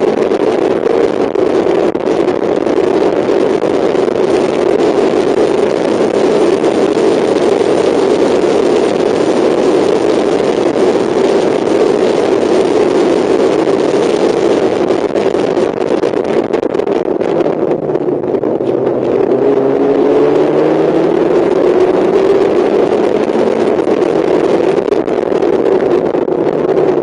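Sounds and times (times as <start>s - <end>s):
race car engine droning: 16.2s - 27.0s.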